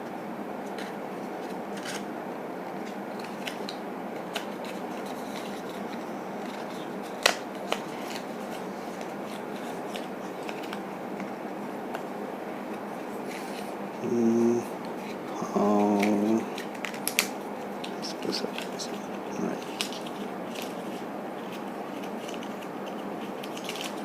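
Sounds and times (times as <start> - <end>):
packaging clicks and scratching: 0.7 - 2.1, 2.8 - 10.9, 15.0 - 24.0.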